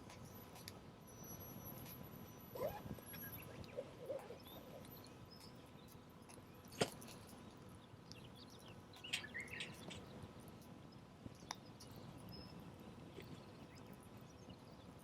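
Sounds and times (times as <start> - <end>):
faint bird chirps: 1.1 - 6.0, 8.1 - 10.1.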